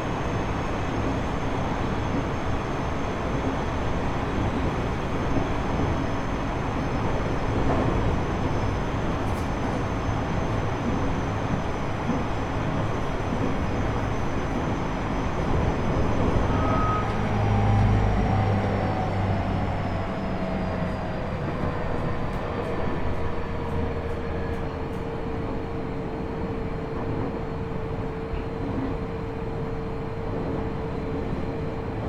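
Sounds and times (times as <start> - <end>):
train wheels on rail rumble: 0.0 - 32.0
train motor and gear whine: 11.4 - 26.2.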